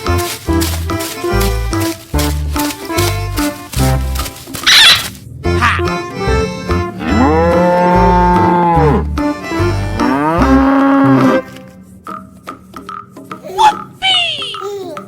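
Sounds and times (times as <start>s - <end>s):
cow mooing: 7.0s - 9.2s, 10.0s - 11.5s.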